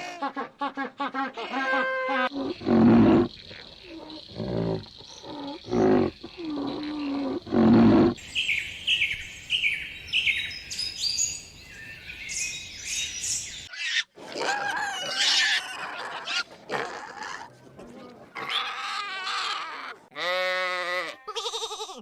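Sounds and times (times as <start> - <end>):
small birds chirping: 8.1 - 13.7
bird calls: 8.2 - 13.7.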